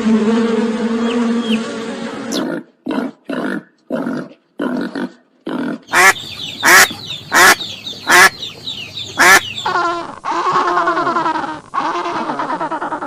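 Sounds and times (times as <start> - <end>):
waterfowl honking: 0.6 - 2.4, 5.9 - 13.0
bird calling rapidly: 5.9 - 13.0.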